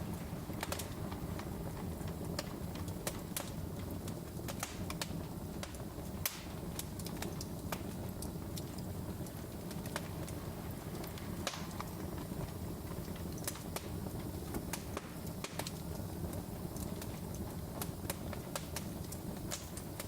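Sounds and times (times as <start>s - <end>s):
fire crackling and popping: 0.0s - 20.0s
low rumble of flames: 0.0s - 20.0s.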